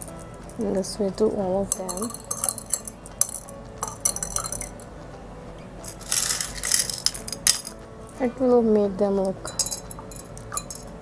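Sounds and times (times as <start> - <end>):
pebbles clinking in glass jars: 1.8 - 4.7, 5.8 - 7.8, 9.6 - 10.9
marbles rattling in jar: 5.9 - 7.8.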